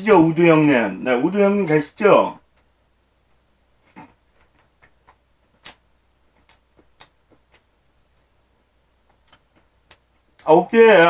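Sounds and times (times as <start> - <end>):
person chewing food: 4.0 - 8.3.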